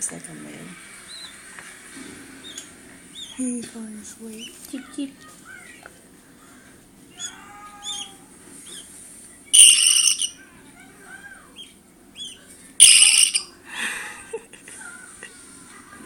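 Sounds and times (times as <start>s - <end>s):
baby birds peeping: 0.0s - 13.6s
loud shrill bird calls: 2.4s - 3.4s, 7.2s - 8.9s, 9.5s - 10.4s, 11.6s - 13.5s.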